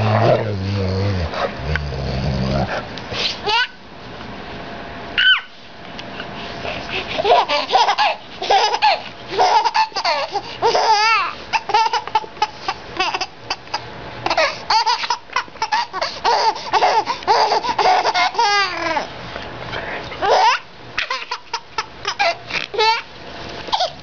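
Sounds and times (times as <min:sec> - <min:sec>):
baby laughing: 0:03.4 - 0:03.8, 0:07.0 - 0:19.1, 0:20.2 - 0:23.1, 0:23.7 - 0:24.0.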